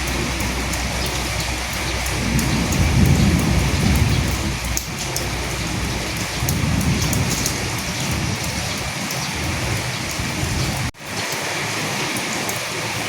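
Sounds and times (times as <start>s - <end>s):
low rumble: 0.0s - 10.9s
rain falling on dead leaves: 0.0s - 13.0s.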